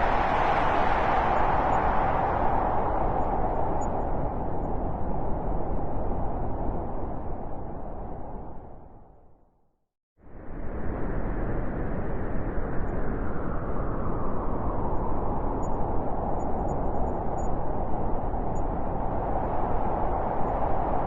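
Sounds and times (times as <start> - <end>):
steady rushing noise: 0.0 - 7.2.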